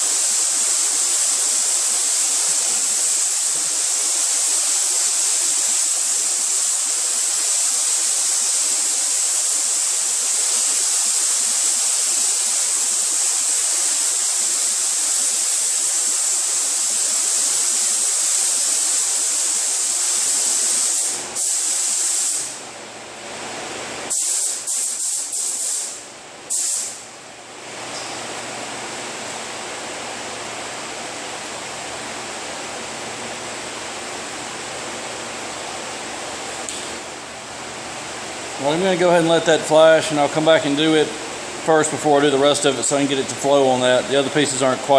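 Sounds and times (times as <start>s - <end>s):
paint spray gun hissing: 0.0s - 22.6s, 24.1s - 27.0s.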